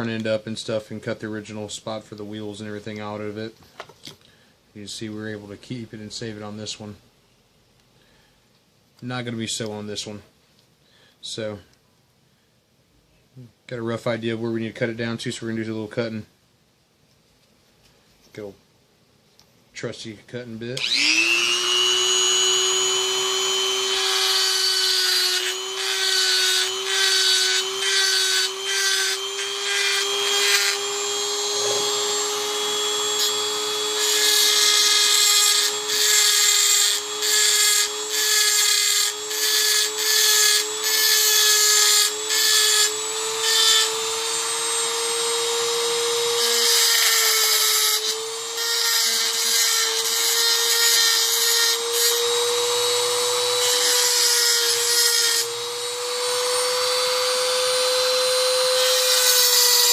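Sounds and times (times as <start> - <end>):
rotary tool grinding metal: 20.8 - 59.9
rotary tool motor whine: 20.8 - 59.9.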